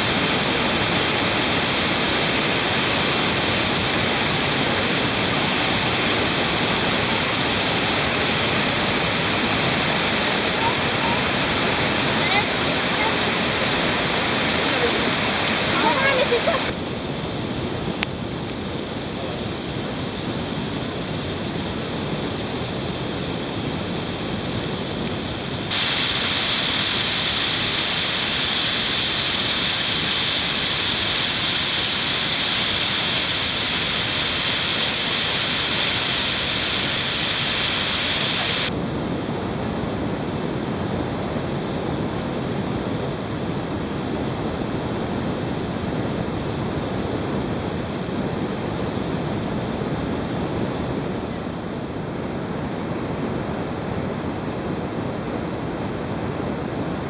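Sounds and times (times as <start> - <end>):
waterfall pouring into pools: 0.0 - 16.7, 25.7 - 38.7.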